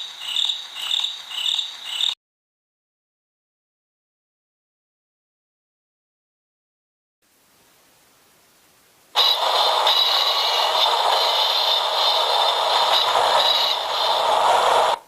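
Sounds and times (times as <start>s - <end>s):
train wheel squeal: 0.0s - 2.2s, 9.2s - 15.0s.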